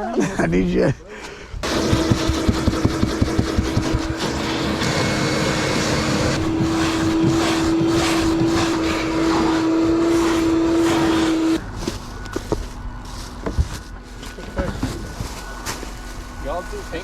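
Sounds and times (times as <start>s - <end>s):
machine motor humming: 1.6s - 11.8s.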